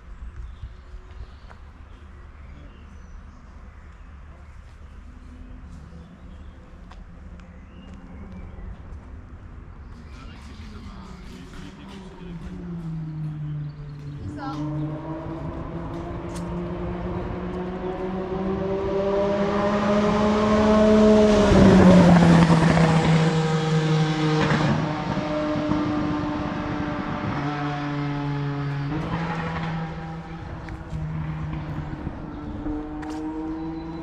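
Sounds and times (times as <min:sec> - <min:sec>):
racing car engine passing: 0:10.0 - 0:34.0.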